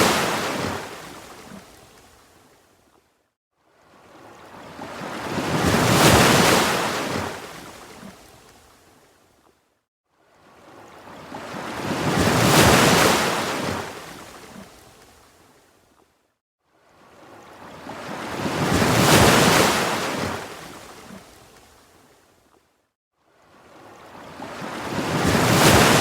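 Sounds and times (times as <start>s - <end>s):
ocean waves surging: 24.2s - 26.0s.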